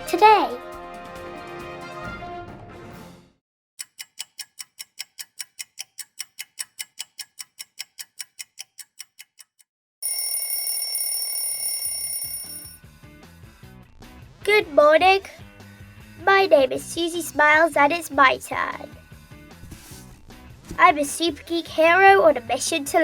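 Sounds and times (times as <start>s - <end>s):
clock ticking: 3.8s - 9.7s
alarm clock bell ringing: 10.0s - 12.8s.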